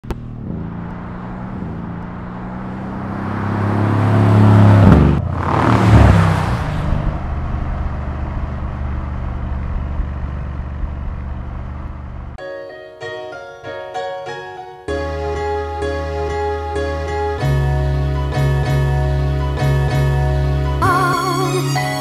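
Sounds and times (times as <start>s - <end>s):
car engine driving past: 0.0s - 12.4s.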